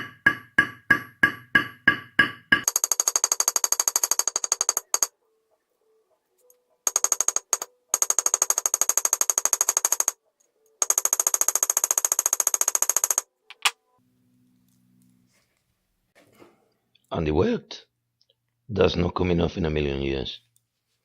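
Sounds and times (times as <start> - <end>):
small hammer tapping steel: 0.0 - 5.1.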